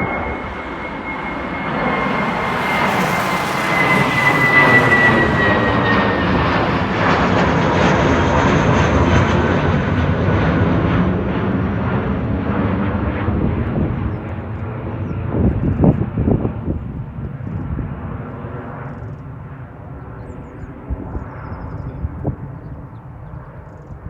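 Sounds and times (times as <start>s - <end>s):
jet engines roaring past: 0.0s - 24.0s.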